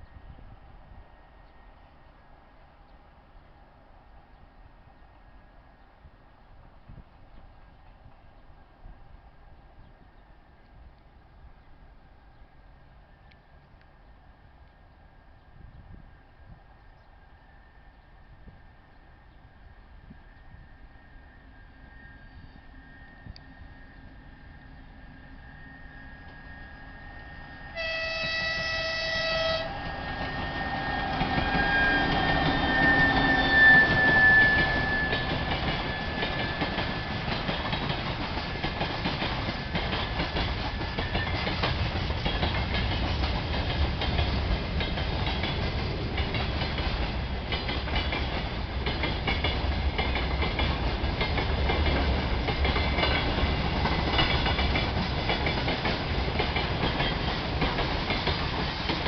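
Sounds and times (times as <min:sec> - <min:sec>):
diesel locomotive engine rumble: 0:00.0 - 0:59.0
locomotive horn blast: 0:27.7 - 0:29.9
wheels clacking over rail joints: 0:27.8 - 0:59.0.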